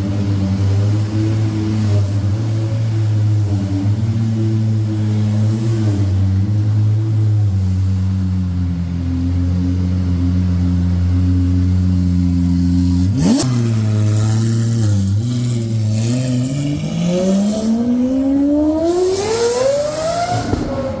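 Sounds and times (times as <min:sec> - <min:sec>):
engine revving: 0:12.3 - 0:21.0.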